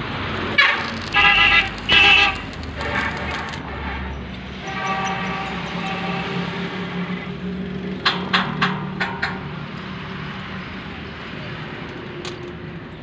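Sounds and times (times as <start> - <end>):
tractor engine running: 0.6 - 3.6.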